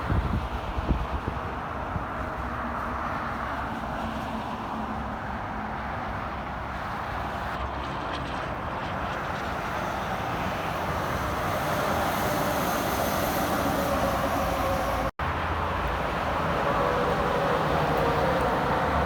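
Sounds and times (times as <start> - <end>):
highway traffic: 0.0 - 19.0
vehicle approaching: 7.2 - 19.0.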